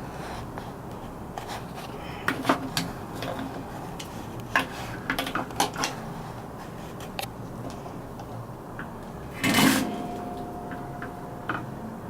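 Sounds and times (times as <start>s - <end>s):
steady low hum: 6.0s - 12.0s.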